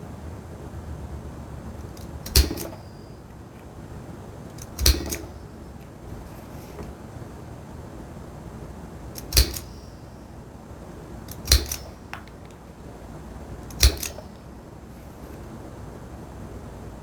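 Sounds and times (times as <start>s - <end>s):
hammer striking hole punch: 2.0s - 2.9s, 4.6s - 5.5s, 9.2s - 10.1s, 11.3s - 12.4s, 13.6s - 14.4s.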